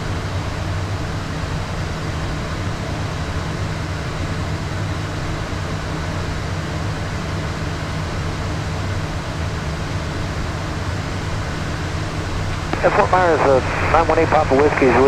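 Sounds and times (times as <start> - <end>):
constant low hum: 12.2 - 15.0.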